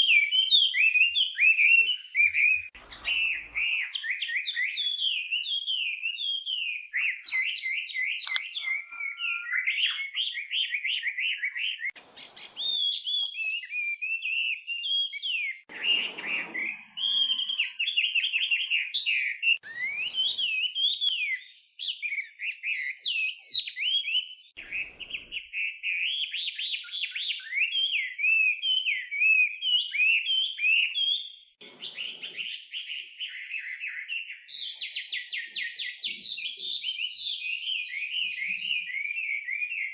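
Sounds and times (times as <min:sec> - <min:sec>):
bird singing whistled song: 0:00.0 - 0:39.9.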